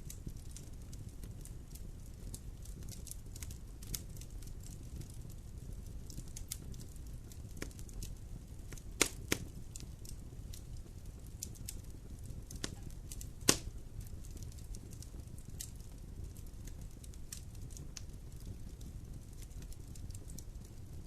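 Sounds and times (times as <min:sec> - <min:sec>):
fire crackling: 0:00.0 - 0:21.0
wood fire burning: 0:00.0 - 0:21.0
sharp pops of burning wood: 0:06.1 - 0:20.6.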